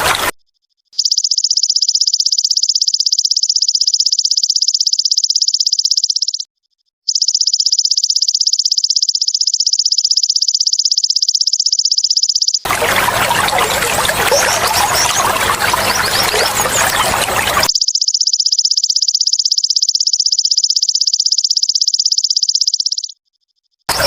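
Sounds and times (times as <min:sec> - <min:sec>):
insect pulsing trill: 0:12.8 - 0:23.2.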